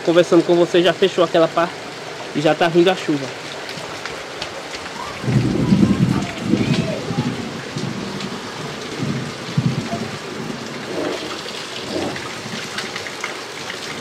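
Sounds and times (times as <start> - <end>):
rain falling: 0.0 - 14.0
low rumbles: 5.0 - 13.0.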